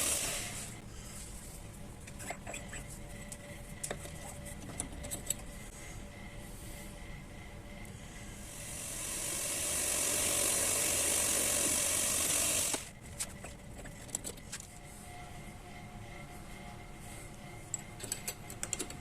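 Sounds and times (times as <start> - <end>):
lathe cutting hiss: 0.0 - 0.8, 8.4 - 12.9
lathe running: 8.3 - 12.9.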